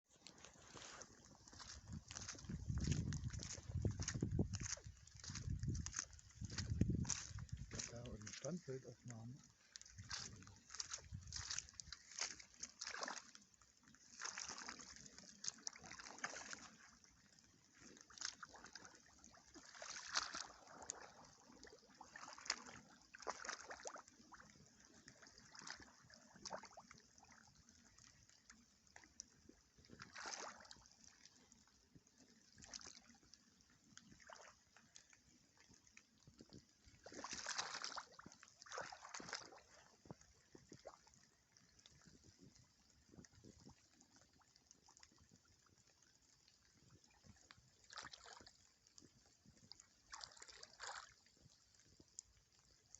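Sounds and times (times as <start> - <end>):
rubber boots splashing through puddles: 0.1 - 28.1, 29.0 - 31.7, 32.4 - 33.2, 33.8 - 41.3, 47.8 - 48.6, 49.7 - 51.2.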